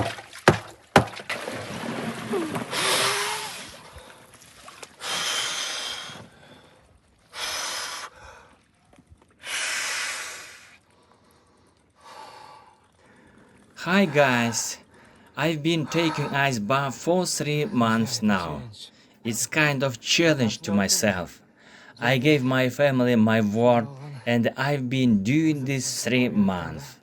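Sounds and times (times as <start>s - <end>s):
water splashing: 0.0s - 12.0s
man gasping hissing breaths: 5.0s - 6.3s, 7.4s - 8.6s, 9.4s - 10.8s, 15.8s - 16.5s
man groaning: 15.4s - 16.7s, 17.4s - 18.6s.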